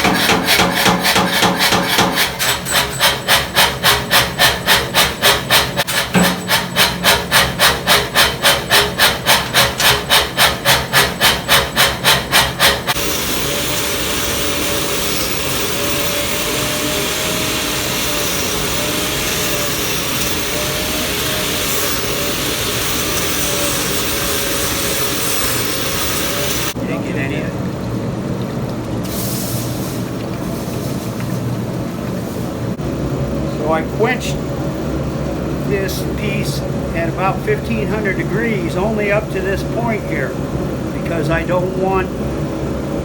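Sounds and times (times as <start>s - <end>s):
sawing or filing steel: 0.0s - 26.8s.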